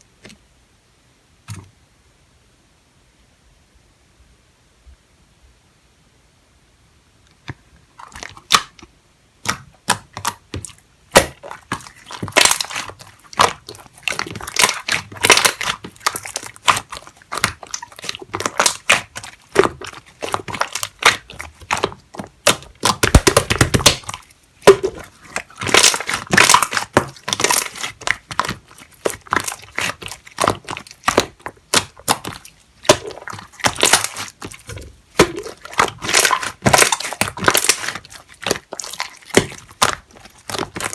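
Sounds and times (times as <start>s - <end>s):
slime squeezed wet pops: 9.4s - 40.9s.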